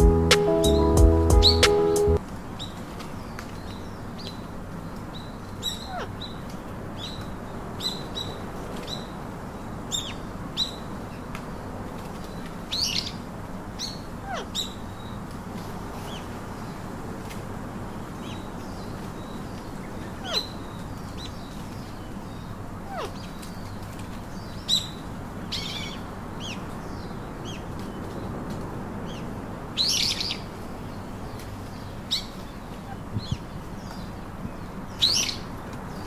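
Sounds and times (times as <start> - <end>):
steady background hiss: 0.0 - 36.0.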